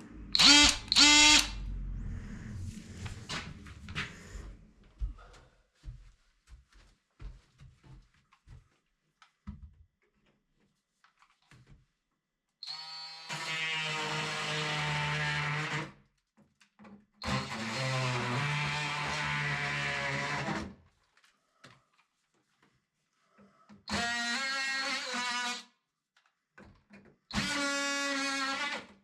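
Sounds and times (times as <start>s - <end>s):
multi-tool cutting into wood: 0.3s - 1.6s, 12.6s - 15.9s, 17.2s - 20.7s, 23.9s - 25.7s, 27.3s - 28.9s.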